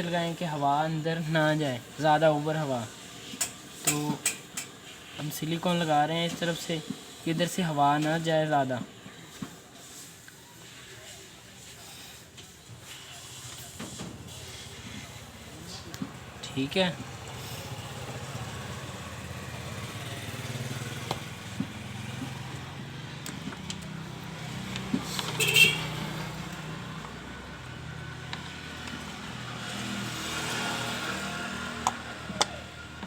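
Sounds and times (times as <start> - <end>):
vehicle engines humming: 12.8 - 33.0.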